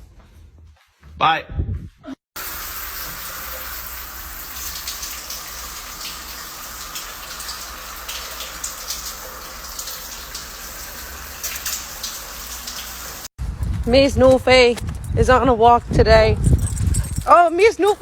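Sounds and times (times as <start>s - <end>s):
rushing water: 2.4s - 13.3s.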